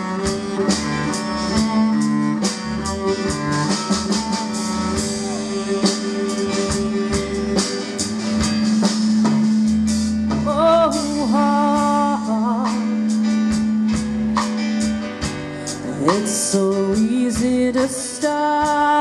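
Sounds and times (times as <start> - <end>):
bowed string line: 0.0 - 11.6
bass: 0.0 - 19.0
drum kit beat: 0.0 - 19.0
guitar: 0.0 - 19.0
live band playing: 0.0 - 19.0.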